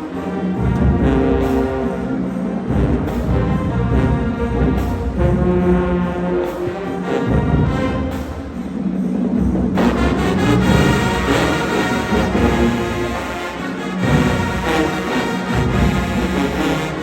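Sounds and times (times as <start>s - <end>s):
marching band playing: 0.0s - 17.0s
low drum beats: 0.6s - 17.0s.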